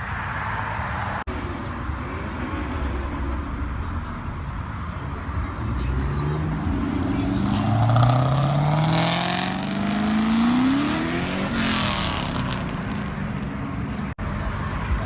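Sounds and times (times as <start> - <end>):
car engine accelerating hard: 5.2 - 13.4.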